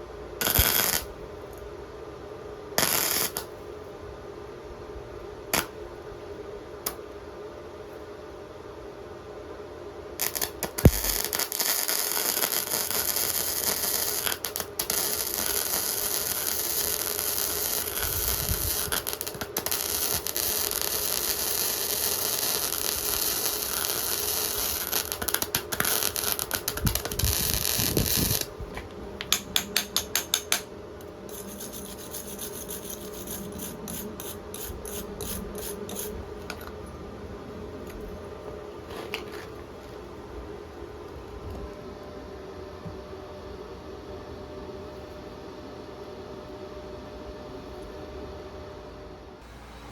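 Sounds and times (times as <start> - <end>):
welding arc crackling: 0.4 - 1.1, 2.8 - 3.5, 10.2 - 28.5, 31.3 - 36.1.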